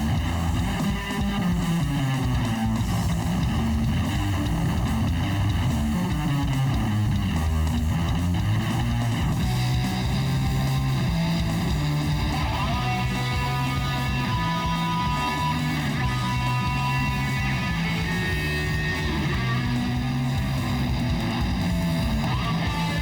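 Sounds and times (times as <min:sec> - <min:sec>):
rock music with guitar and bass: 0:00.0 - 0:23.0.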